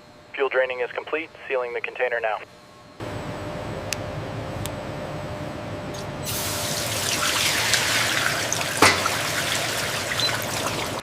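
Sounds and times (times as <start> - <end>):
liquid running and splashing: 6.3 - 11.0.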